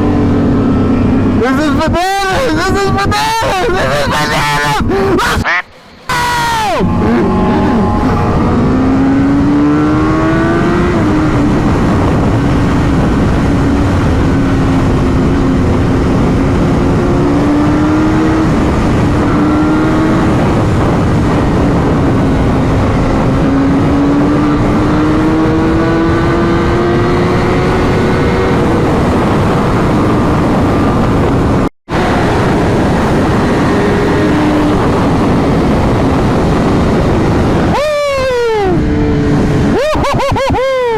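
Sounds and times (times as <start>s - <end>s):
heavy wind noise: 0.0s - 40.9s
motorcycle engine running: 6.8s - 37.8s.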